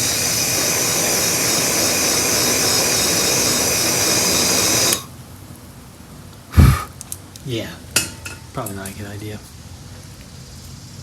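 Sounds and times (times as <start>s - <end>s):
pressurised gas jet hissing: 0.0s - 5.1s, 6.5s - 6.9s.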